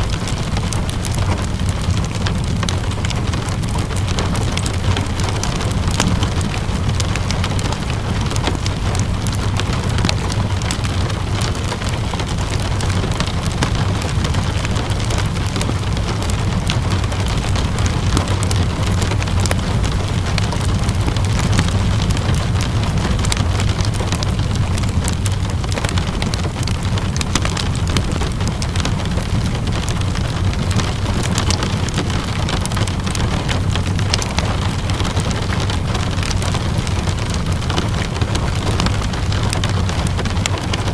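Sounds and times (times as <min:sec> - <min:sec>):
steady rainfall: 0:00.0 - 0:40.9
wood fire crackling: 0:00.0 - 0:40.9.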